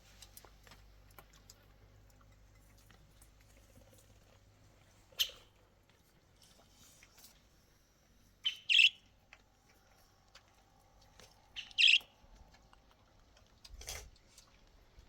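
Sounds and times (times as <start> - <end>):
bird chirping: 8.4 - 9.0, 11.6 - 12.1.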